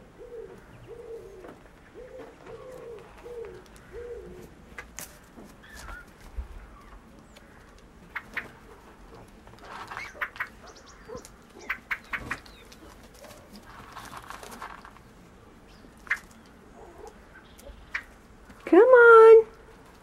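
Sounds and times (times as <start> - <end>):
soft rustling: 1.2 - 17.2
birds giving click-like calls: 6.8 - 8.6, 9.6 - 13.0, 16.0 - 18.2.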